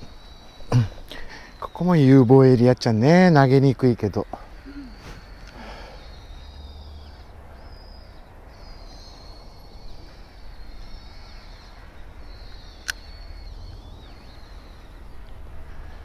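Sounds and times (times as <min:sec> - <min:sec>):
birds singing: 0:00.0 - 0:16.0
sharp click: 0:12.8 - 0:13.0.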